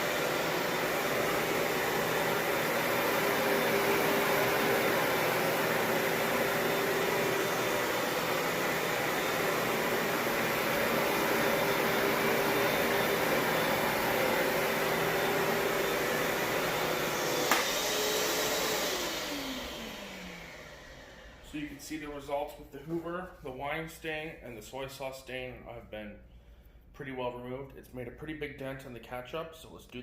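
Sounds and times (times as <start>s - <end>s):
carpet cleaner motor droning: 0.0s - 21.6s.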